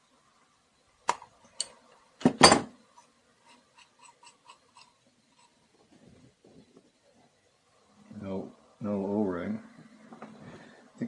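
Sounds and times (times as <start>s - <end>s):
metal parts and tool clicking: 1.1s - 1.8s.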